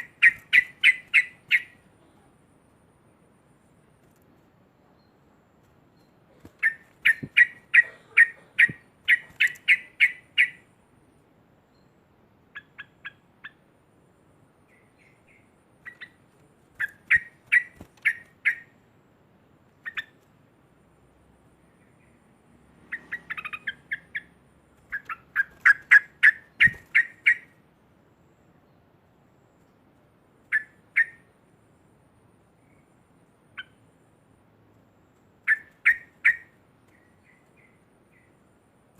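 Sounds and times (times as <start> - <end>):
bird chattering calls: 0.0 - 1.8, 6.3 - 10.6, 16.8 - 18.7, 19.8 - 20.2, 22.9 - 24.3, 24.9 - 27.6, 35.5 - 38.2.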